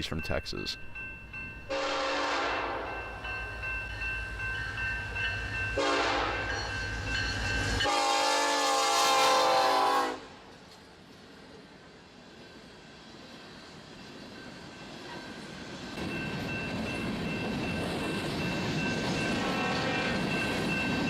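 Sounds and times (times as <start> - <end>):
locomotive air horn blasts: 1.7 - 2.9, 5.8 - 6.4, 7.8 - 10.4.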